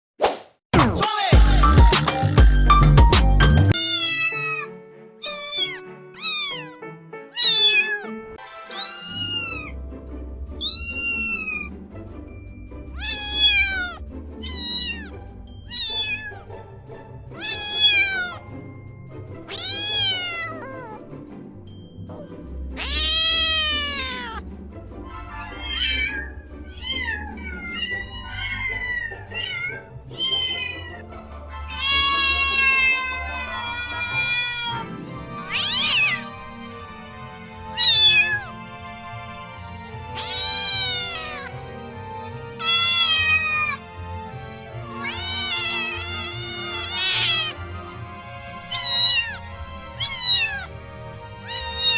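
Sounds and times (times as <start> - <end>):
background music with low bass: 0.8 - 3.8, 8.4 - 20.3, 21.0 - 30.3
cats meowing: 3.7 - 6.8, 7.4 - 9.8, 10.6 - 11.7, 13.0 - 16.5, 17.4 - 18.5, 19.5 - 21.0, 22.8 - 24.4, 25.3 - 36.3, 37.6 - 38.6, 40.1 - 41.5, 42.6 - 44.1, 44.7 - 51.9.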